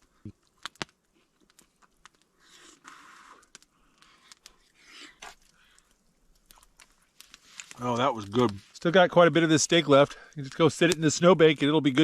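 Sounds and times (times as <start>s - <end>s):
person chewing: 0.4s - 7.6s
soft breaths: 2.3s - 6.2s.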